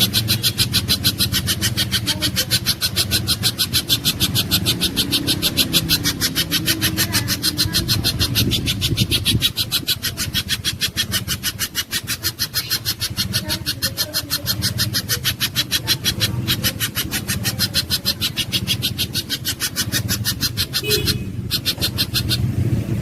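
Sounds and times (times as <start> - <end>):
bird calling in sharp high chips: 0.0 - 22.5.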